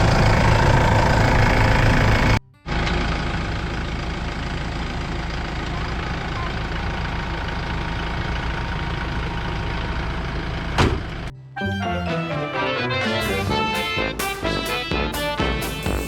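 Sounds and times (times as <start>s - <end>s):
diesel tractor engine idling: 0.0s - 11.3s.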